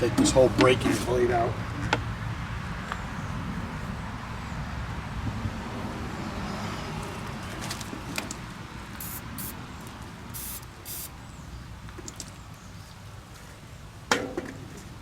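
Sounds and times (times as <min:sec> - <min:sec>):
hiss bursts: 0:09.0 - 0:09.6, 0:10.4 - 0:11.2.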